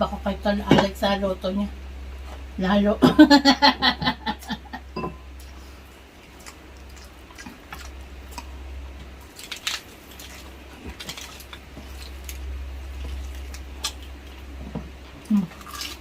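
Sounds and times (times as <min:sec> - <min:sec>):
low steady hum: 0:00.0 - 0:16.0
wet chewing and lip smacks: 0:06.2 - 0:08.6.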